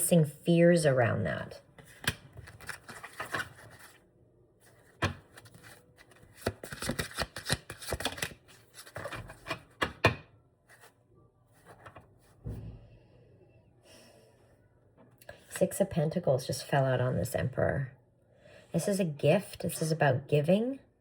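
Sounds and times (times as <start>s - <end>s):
cards being shuffled: 1.8s - 4.0s, 4.8s - 9.8s.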